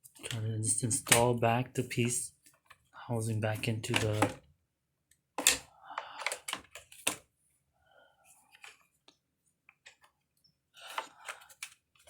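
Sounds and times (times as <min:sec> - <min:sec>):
plastic parts clicking and knocking: 0:03.6 - 0:04.5, 0:05.3 - 0:07.3, 0:08.5 - 0:10.2, 0:10.9 - 0:12.0.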